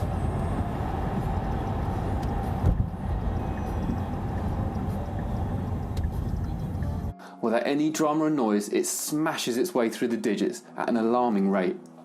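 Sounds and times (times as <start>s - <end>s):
road and tyre rumble: 0.0s - 7.1s.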